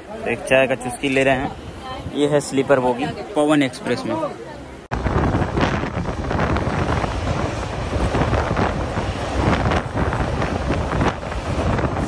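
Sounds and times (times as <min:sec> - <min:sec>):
train running rumble: 0:04.9 - 0:12.0
wind rushing over microphone: 0:04.9 - 0:12.0
train clatter: 0:05.1 - 0:12.0.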